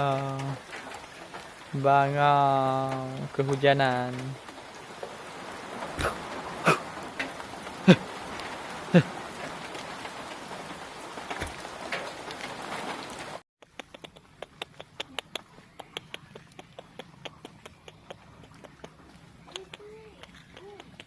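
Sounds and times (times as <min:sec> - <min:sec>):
rain falling: 0:00.0 - 0:21.0
sharp clicks: 0:13.6 - 0:21.0.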